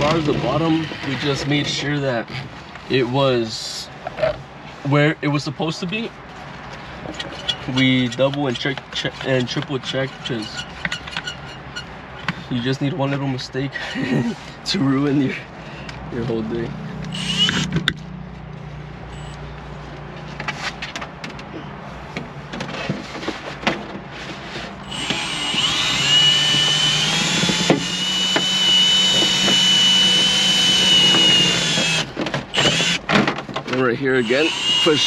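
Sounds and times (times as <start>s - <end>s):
power tool hum: 17.0s - 17.9s, 24.8s - 33.0s, 34.2s - 35.0s.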